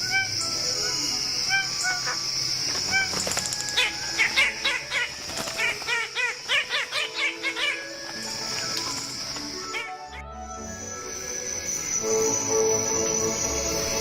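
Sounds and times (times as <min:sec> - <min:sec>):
steady high-pitched hiss: 0:00.0 - 0:14.0
bird honking calls: 0:01.5 - 0:08.1, 0:09.6 - 0:10.3.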